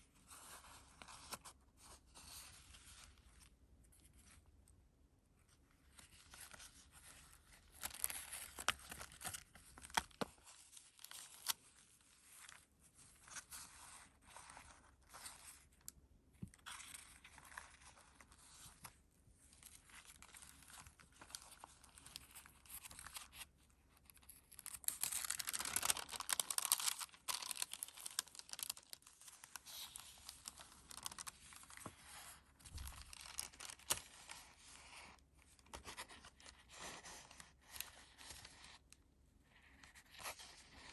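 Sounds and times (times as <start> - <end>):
paper pages rustling: 24.6 - 38.8.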